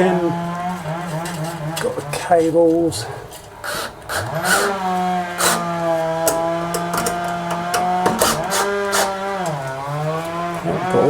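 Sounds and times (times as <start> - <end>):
chainsaw at full throttle: 0.0 - 2.2, 3.6 - 11.0
clicks of parts being handled: 6.2 - 8.5.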